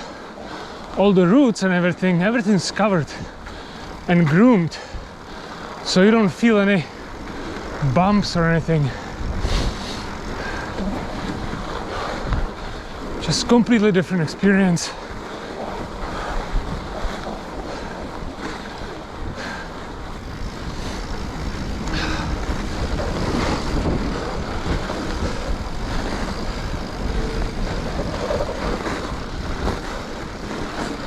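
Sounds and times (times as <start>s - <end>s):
bike tyres rolling on packed snow: 0.0s - 31.0s
wind rushing over microphone: 0.0s - 31.0s
bike knocks and rattles: 20.1s - 31.0s.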